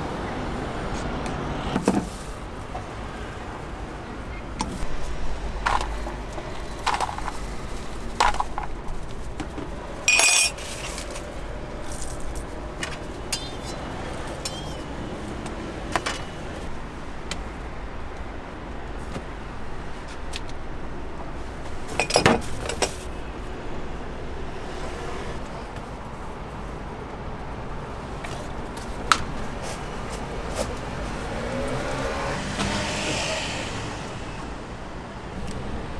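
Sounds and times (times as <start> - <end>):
low traffic rumble: 0.0 - 35.9
clinks and knocks of objects: 5.6 - 17.5, 21.6 - 23.1.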